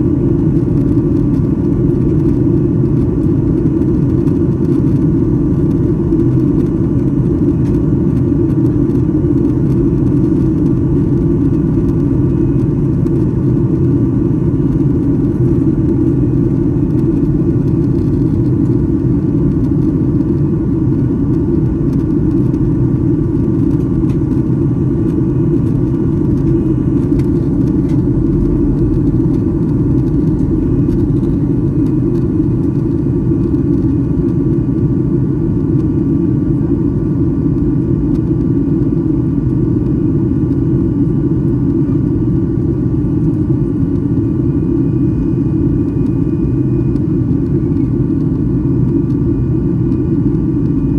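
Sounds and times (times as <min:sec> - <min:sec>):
airliner cabin rumble: 0:00.0 - 0:50.9.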